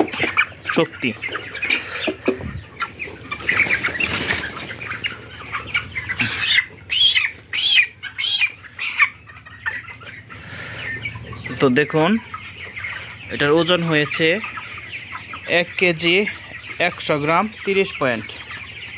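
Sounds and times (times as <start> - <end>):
chicken squawking: 0.0 - 18.9
chicken flapping wings: 3.4 - 4.7.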